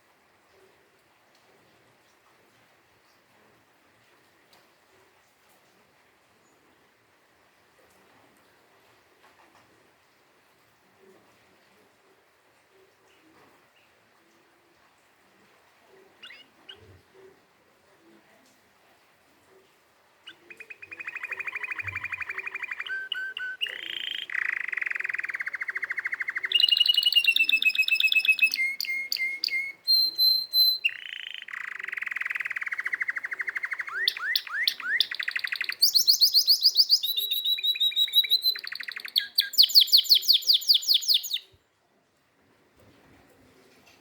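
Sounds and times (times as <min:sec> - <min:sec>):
canary singing: 0:16.2 - 0:16.9, 0:20.2 - 0:41.5.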